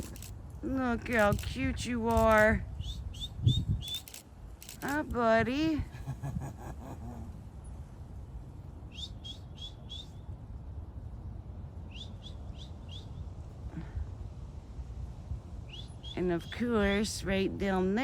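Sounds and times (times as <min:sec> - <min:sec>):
low outdoor rumble: 0:00.0 - 0:18.0
bird whistling song: 0:02.8 - 0:04.1, 0:08.9 - 0:10.2, 0:11.9 - 0:13.2, 0:15.7 - 0:16.2.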